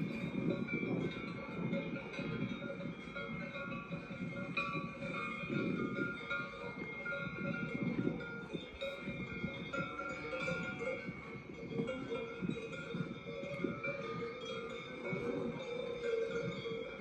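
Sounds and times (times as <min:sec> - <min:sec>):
bells clanking and ringing: 0:00.0 - 0:17.0.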